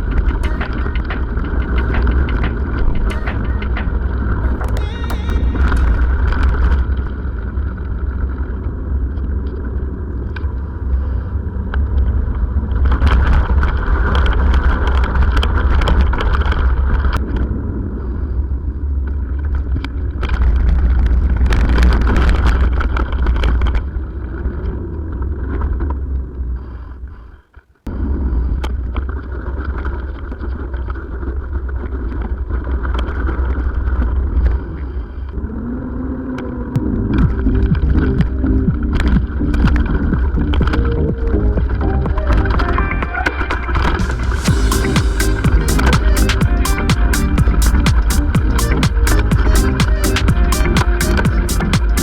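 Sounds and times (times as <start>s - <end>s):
vehicle travel rumble: 27.9s - 52.0s.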